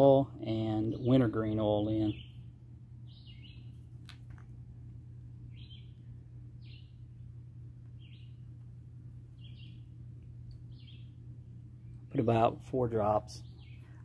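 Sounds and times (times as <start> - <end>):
low hum: 0.0 - 14.0
small bird chirping: 1.8 - 4.4, 5.4 - 12.2, 13.3 - 14.0.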